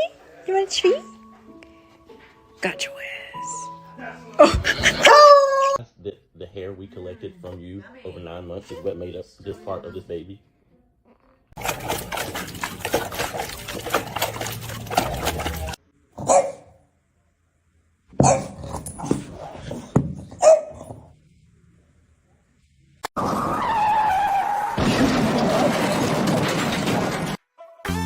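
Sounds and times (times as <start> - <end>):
dogs barking and yipping: 4.6 - 5.8, 11.6 - 16.7, 18.2 - 19.0, 20.3 - 20.9.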